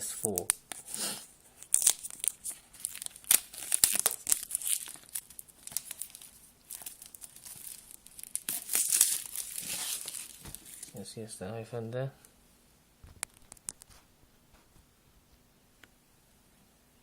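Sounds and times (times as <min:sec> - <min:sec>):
packaging crinkling and tearing: 0:00.0 - 0:11.0.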